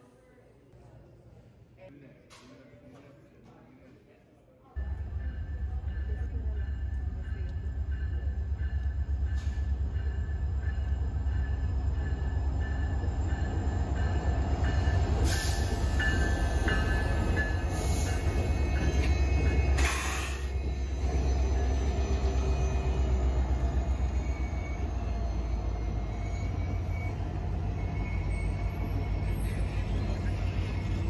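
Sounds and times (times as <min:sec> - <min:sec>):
diesel locomotives rumbling past: 0:04.8 - 0:31.0
high wheel squeal: 0:17.7 - 0:31.0.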